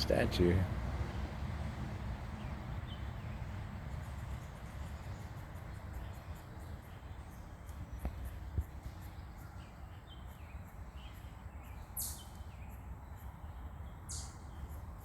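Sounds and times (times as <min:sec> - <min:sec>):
small birds chirping: 0:02.2 - 0:15.0
harsh high bird calls: 0:11.1 - 0:12.4, 0:14.1 - 0:14.7.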